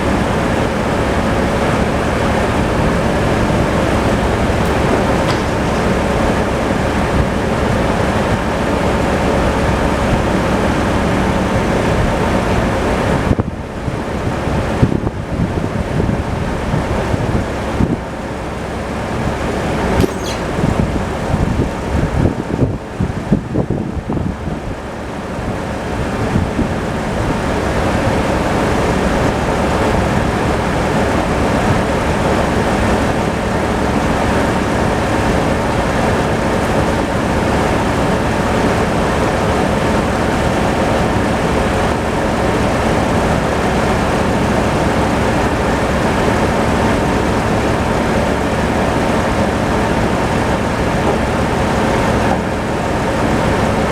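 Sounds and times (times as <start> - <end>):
tractor engine running: 0.0 - 53.9
knocks and clatter: 3.5 - 7.7, 20.0 - 20.8.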